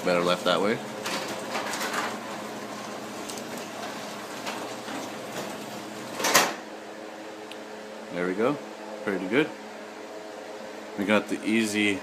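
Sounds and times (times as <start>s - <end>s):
garage door opener running: 0.0s - 6.9s.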